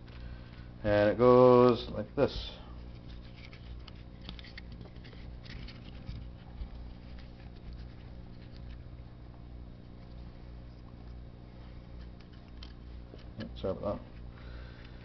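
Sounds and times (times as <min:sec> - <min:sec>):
low steady hum: 0:00.0 - 0:15.0
scratchy rubbing and rustling: 0:02.0 - 0:14.3.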